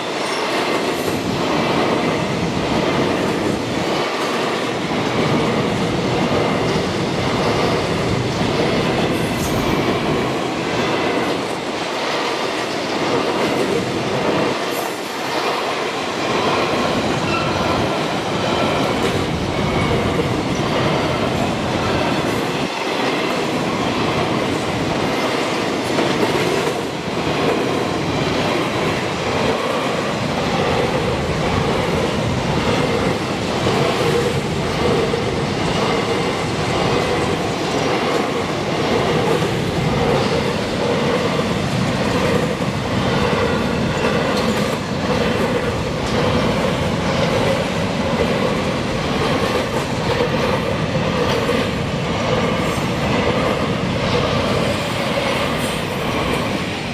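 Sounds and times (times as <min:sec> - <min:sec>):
steel wheels rolling on rails: 0:00.0 - 0:56.9
short clicks of train wheels: 0:43.2 - 0:56.6.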